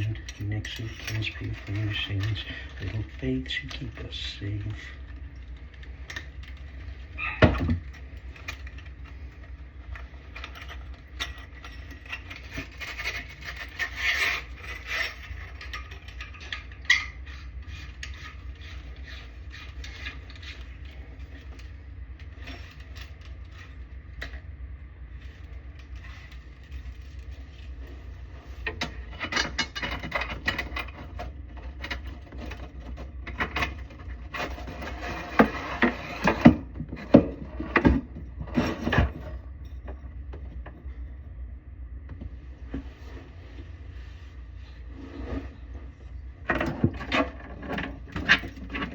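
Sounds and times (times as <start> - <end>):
tool knocks and scrapes: 28.6 - 40.7.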